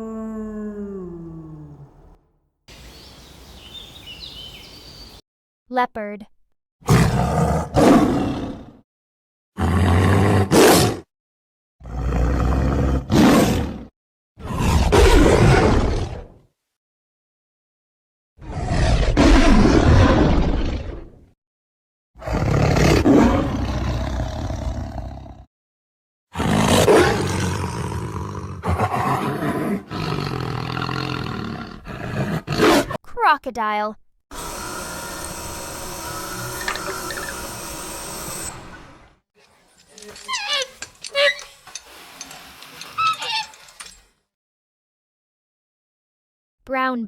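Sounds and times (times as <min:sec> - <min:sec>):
leopard roaring and growling: 0:00.0 - 0:02.2, 0:06.9 - 0:08.8, 0:09.6 - 0:11.0, 0:11.8 - 0:16.4, 0:18.4 - 0:21.2, 0:22.2 - 0:25.5, 0:26.4 - 0:33.0, 0:34.4 - 0:39.2.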